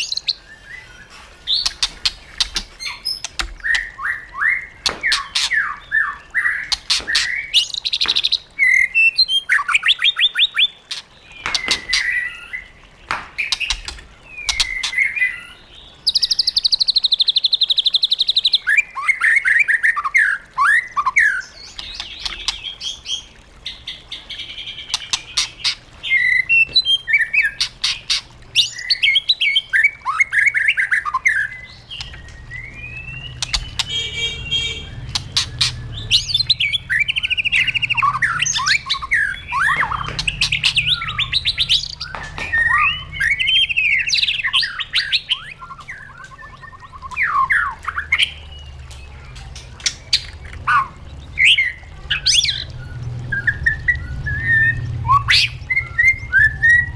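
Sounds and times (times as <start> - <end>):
songbird singing varied song: 24.9 - 56.9.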